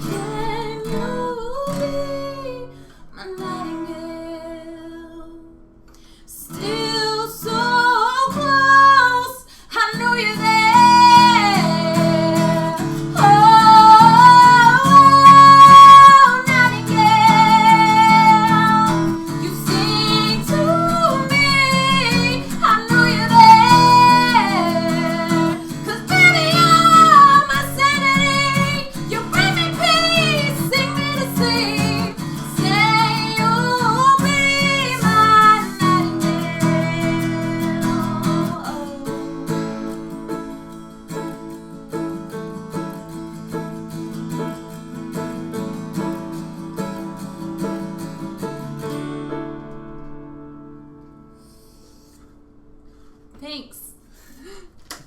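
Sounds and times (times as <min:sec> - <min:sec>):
woman singing: 0:00.0 - 0:05.6, 0:06.2 - 0:41.3
acoustic guitar: 0:00.0 - 0:55.0.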